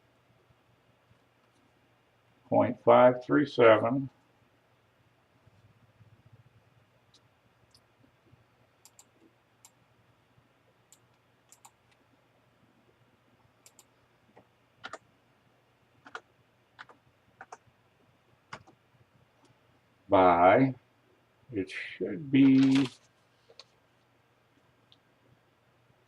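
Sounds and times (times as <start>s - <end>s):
computer keys clicking: 8.8s - 9.8s, 10.9s - 12.0s, 13.6s - 13.9s, 14.8s - 15.0s, 16.0s - 16.2s, 16.8s - 17.6s, 18.5s - 18.8s.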